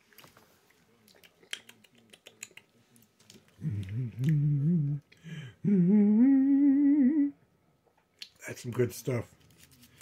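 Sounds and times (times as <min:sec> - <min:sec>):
person humming mmm: 0:03.6 - 0:07.4.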